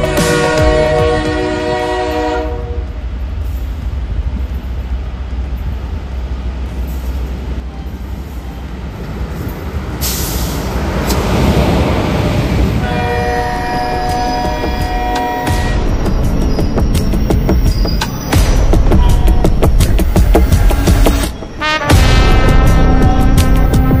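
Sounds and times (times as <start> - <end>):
electric train rumbling: 0.0 - 24.0
wheels on rail: 1.6 - 21.6.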